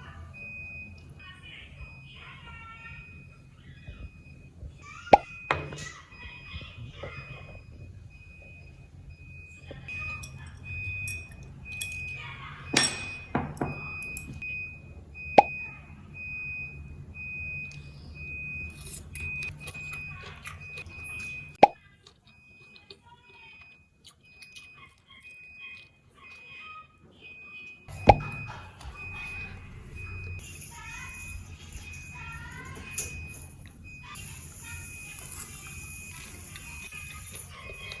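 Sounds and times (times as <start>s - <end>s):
clinks and knocks of handling: 12.7s - 14.4s.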